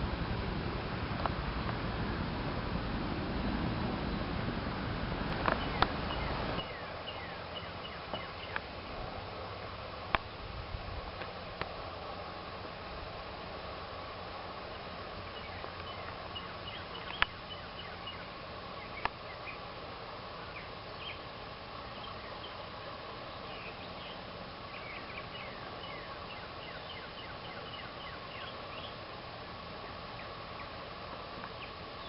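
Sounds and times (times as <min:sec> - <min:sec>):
constant hum: 0:00.0 - 0:32.0
outdoor hiss: 0:00.0 - 0:32.0
bird chirps: 0:05.4 - 0:08.6, 0:15.3 - 0:19.6, 0:23.3 - 0:29.0.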